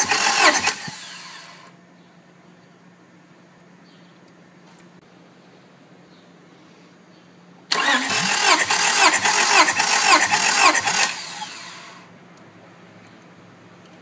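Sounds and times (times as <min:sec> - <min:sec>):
starter motor cranking engine: 0:00.0 - 0:01.7, 0:07.7 - 0:12.1.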